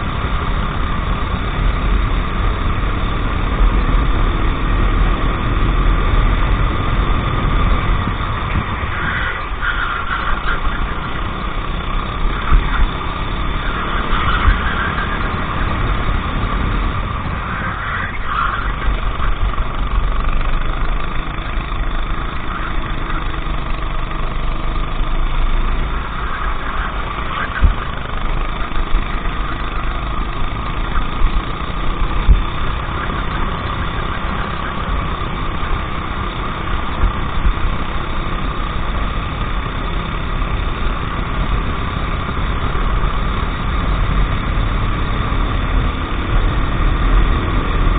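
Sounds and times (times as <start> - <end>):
low rumble: 0.0 - 47.9
racing kart engine: 0.0 - 47.9.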